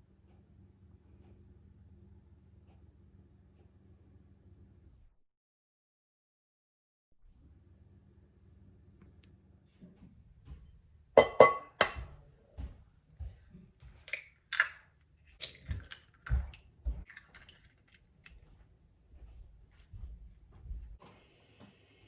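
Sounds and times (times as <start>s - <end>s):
utensils clinking against bowl: 11.2s - 12.1s.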